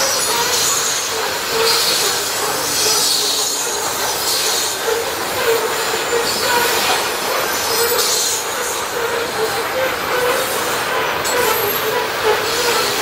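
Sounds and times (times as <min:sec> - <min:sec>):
steel wheels rolling on rail: 0:00.0 - 0:13.0.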